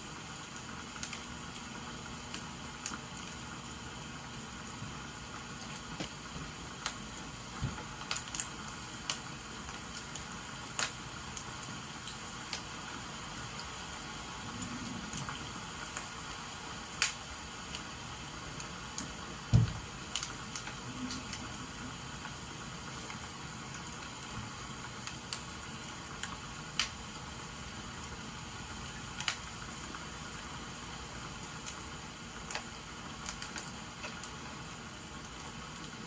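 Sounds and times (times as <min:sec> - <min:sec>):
rain hissing: 0:00.0 - 0:36.0
wood fire crackling and popping: 0:00.4 - 0:36.0
dull thump: 0:19.5 - 0:19.8.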